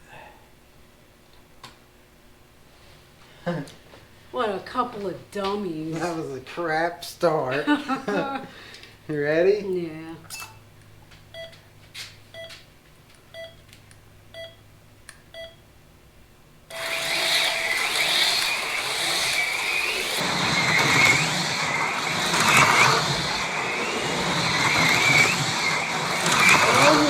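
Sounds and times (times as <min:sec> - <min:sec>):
countdown beeps: 0:11.3 - 0:11.6, 0:13.3 - 0:13.6, 0:14.3 - 0:14.6, 0:15.3 - 0:15.6
long start tone: 0:16.7 - 0:27.0
slot car motors whining: 0:16.7 - 0:27.0
slot cars whirring and rattling: 0:16.7 - 0:27.0.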